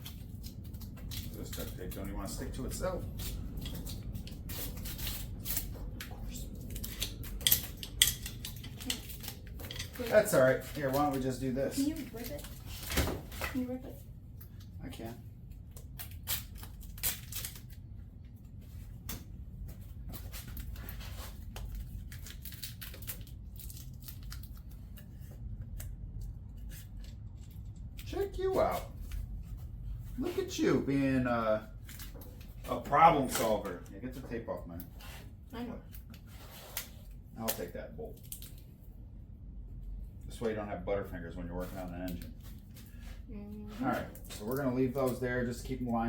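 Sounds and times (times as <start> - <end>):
duct tape ripping: 15.7 - 17.8.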